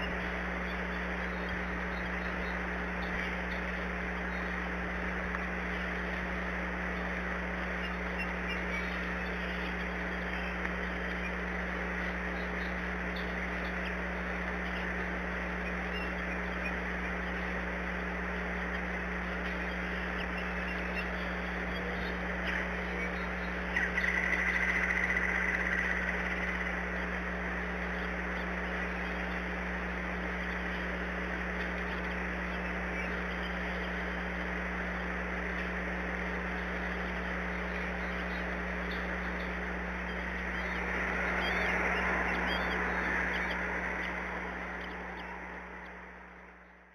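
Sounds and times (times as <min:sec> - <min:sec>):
constant low hum: 0:00.0 - 0:46.9
faint high bird chirps: 0:00.0 - 0:46.9.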